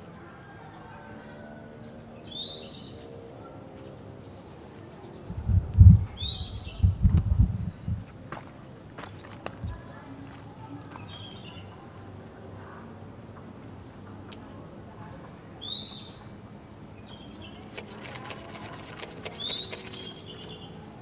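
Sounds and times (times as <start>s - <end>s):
bird chirping: 16.9s - 20.8s.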